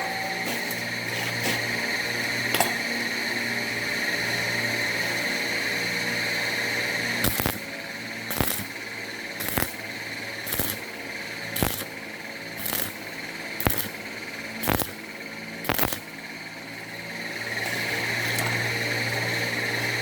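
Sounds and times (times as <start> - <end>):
small motor whining: 0.0 - 20.0.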